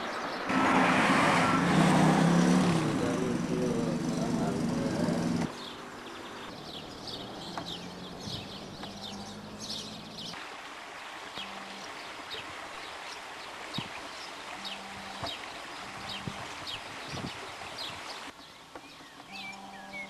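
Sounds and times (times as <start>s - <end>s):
small birds chirping: 2.2s - 10.4s, 11.0s - 20.0s.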